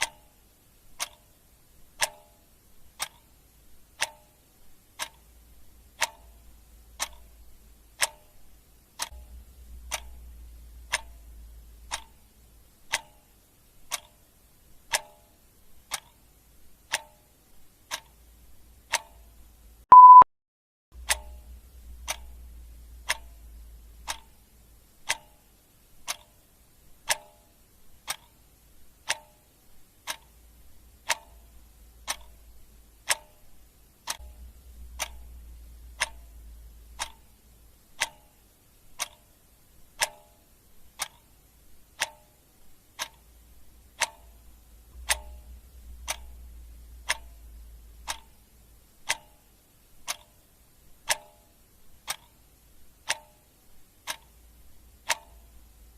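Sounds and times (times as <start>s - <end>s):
clock ticking: 0.0s - 20.2s, 21.0s - 55.9s
low hum: 9.1s - 11.9s, 21.0s - 24.8s, 34.2s - 37.8s, 43.4s - 48.9s.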